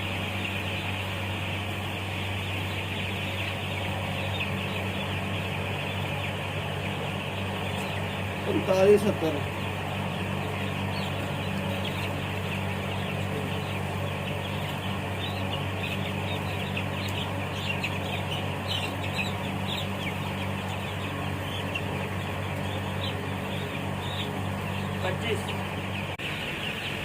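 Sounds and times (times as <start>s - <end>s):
chicks peeping: 0.0s - 27.0s
low machine hum: 0.0s - 27.0s.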